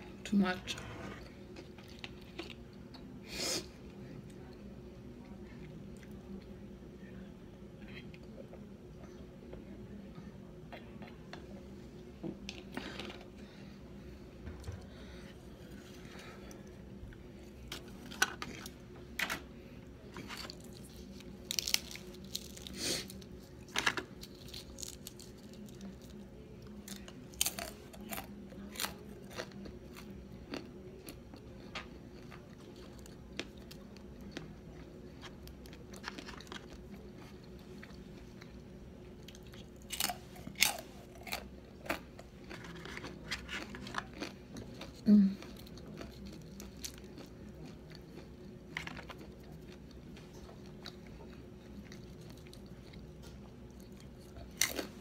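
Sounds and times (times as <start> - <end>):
chewing crispy fried food: 1.5 - 3.1, 19.9 - 55.0.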